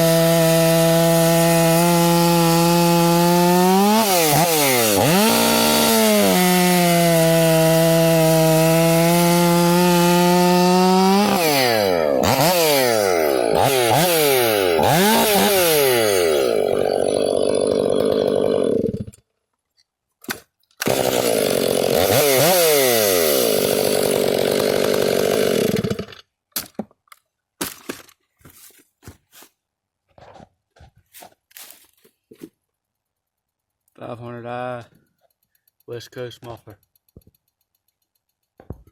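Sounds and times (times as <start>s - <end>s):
chainsaw revving: 0.0s - 19.1s, 20.8s - 26.2s.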